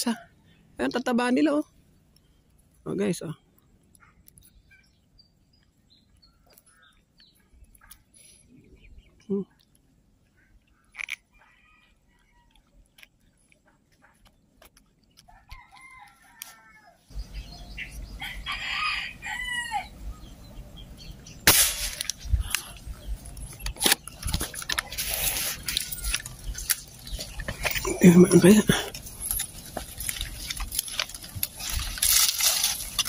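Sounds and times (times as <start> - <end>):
bird calls: 1.8 - 15.3, 15.9 - 21.5, 22.1 - 30.7
rustling: 23.7 - 33.0.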